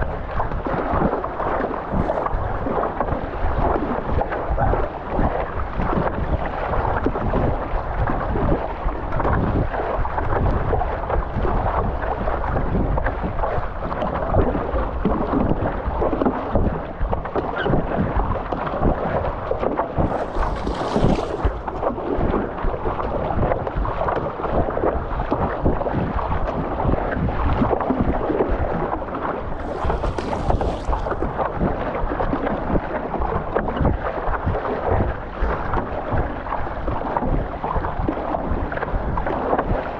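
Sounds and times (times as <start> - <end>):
rushing sea water and waves: 0.0 - 39.9
wind buffeting microphone: 0.0 - 39.9
hissy splashes: 20.0 - 21.8, 29.5 - 31.6.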